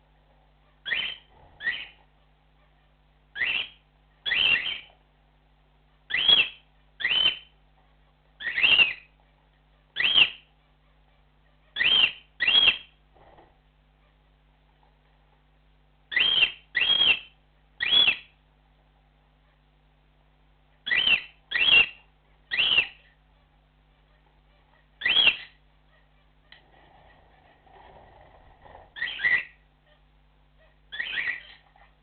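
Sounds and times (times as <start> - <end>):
cockatiel whistled calls: 0.8 - 2.0, 3.4 - 4.9, 6.1 - 7.5, 8.4 - 9.1, 10.0 - 10.5, 11.8 - 12.9, 16.1 - 18.3, 20.8 - 23.1, 25.0 - 25.6, 29.0 - 29.6, 30.9 - 31.6.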